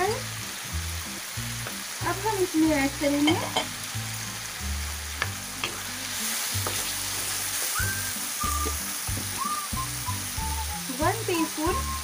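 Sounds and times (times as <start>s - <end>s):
tomatoes sizzling in a pan: 0.0s - 12.0s
wooden spatula stirring and scraping: 6.6s - 9.4s.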